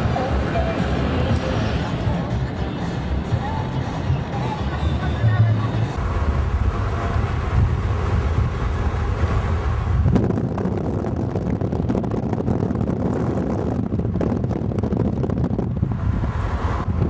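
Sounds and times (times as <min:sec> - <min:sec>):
car road and engine rumble: 0:00.0 - 0:17.0
wind buffeting microphone: 0:00.0 - 0:17.0.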